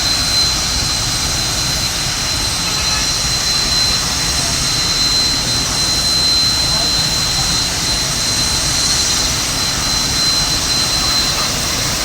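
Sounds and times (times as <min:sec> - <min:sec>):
burning gas jet roaring: 0:00.0 - 0:12.0
thin high whistle: 0:00.0 - 0:12.0.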